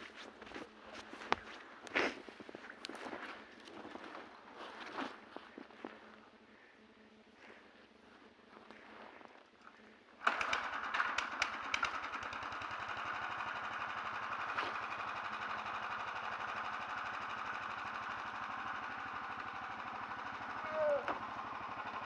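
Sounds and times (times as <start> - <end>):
small engine starting and running: 10.2 - 22.0.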